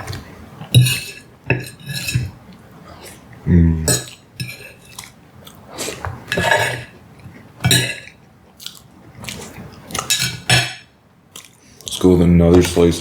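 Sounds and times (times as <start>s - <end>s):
spoon scraping a plate: 0.7s - 2.4s, 3.9s - 5.1s, 6.3s - 7.0s, 7.6s - 8.2s, 10.0s - 10.9s
chewing: 4.1s - 7.5s, 8.5s - 10.3s, 11.3s - 13.0s.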